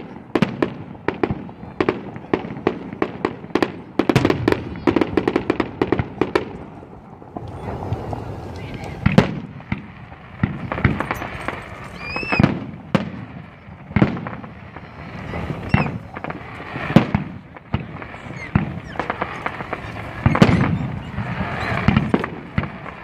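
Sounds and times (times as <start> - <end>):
firework shells booming: 0.0 - 23.0
firework pops: 0.4 - 23.0.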